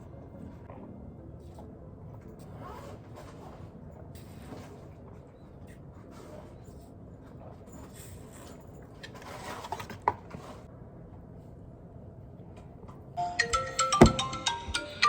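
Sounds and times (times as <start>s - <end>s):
phone ringtone chime melody: 13.2s - 15.0s.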